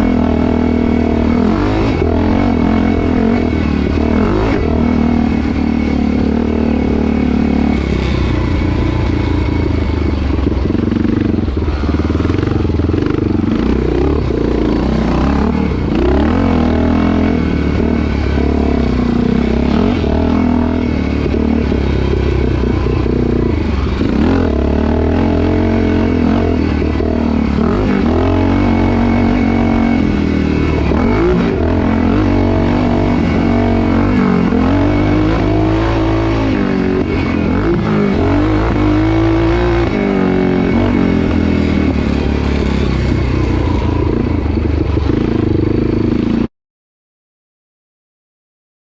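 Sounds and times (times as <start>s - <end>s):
motorcycle engine revving: 0.0s - 46.5s.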